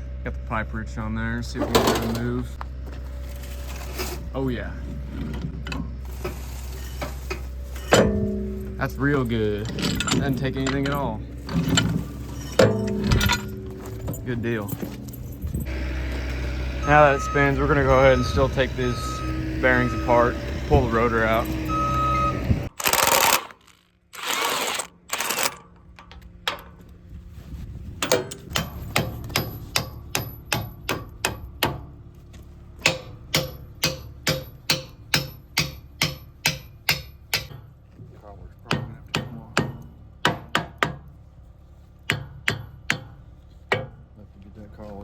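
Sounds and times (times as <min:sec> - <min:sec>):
hammer striking steel: 0:07.8 - 0:09.4, 0:12.4 - 0:14.6, 0:28.1 - 0:31.9, 0:32.8 - 0:37.7, 0:38.7 - 0:41.0, 0:42.1 - 0:44.0.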